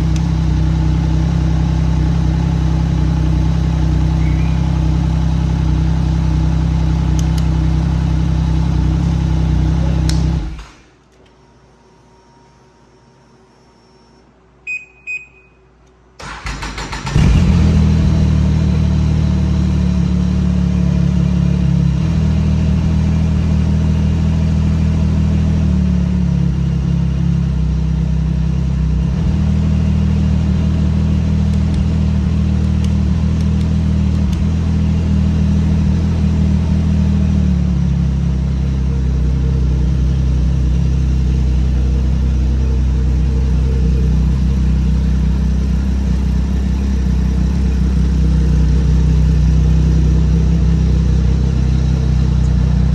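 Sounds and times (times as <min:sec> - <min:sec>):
snowmobile engine starting and idling: 0:00.0 - 0:10.9, 0:16.2 - 0:52.9
short beeps: 0:14.6 - 0:15.7.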